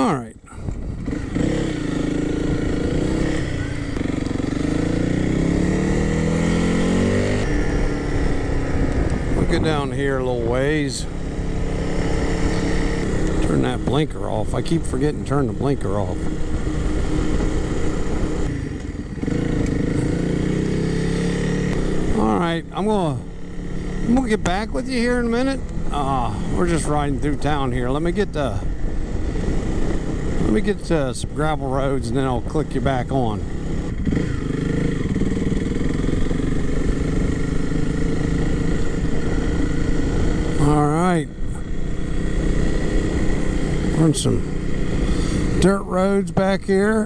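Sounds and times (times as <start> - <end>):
wind noise: 0.0 - 4.1, 5.4 - 20.0
motorcycle engine running: 0.0 - 47.0.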